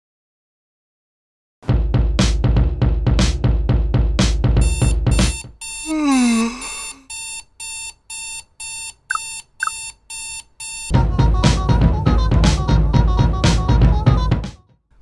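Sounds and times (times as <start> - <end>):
music: 1.6 - 5.5, 10.9 - 14.8
electronic alarm beeping: 4.6 - 5.9, 6.6 - 10.9.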